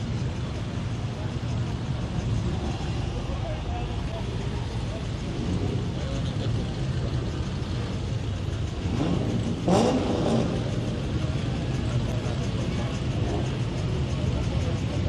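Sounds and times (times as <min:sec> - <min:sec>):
car engine rumbling and revving: 0:00.0 - 0:15.0.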